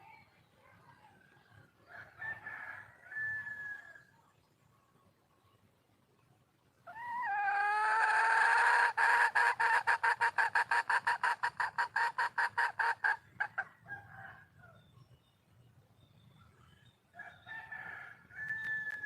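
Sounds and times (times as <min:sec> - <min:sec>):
junglefowl hen calling: 0:06.8 - 0:13.7
hen clucking rapidly: 0:06.9 - 0:13.7.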